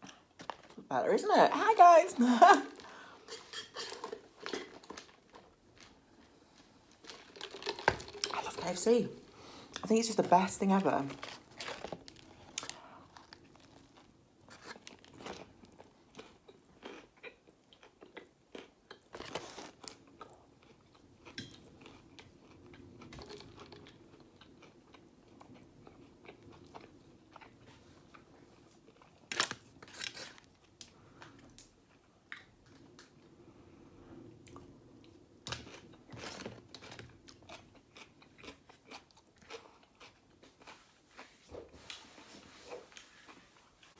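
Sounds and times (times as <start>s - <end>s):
crunching and chewing burger: 4.0s - 8.5s, 11.2s - 33.2s, 34.4s - 41.3s.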